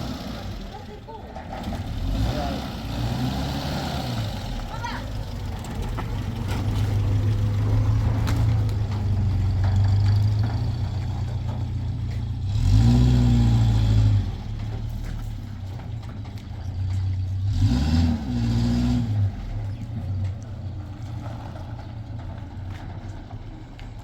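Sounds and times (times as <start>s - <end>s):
vehicle engine revving: 0.0s - 24.0s
light clatters: 4.6s - 12.8s, 14.0s - 17.7s, 19.2s - 24.0s.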